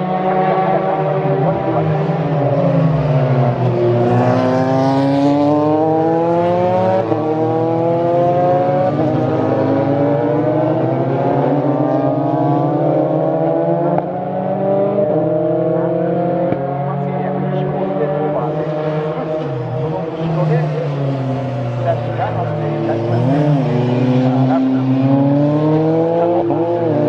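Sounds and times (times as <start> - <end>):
race car engines accelerating: 0.0 - 27.0.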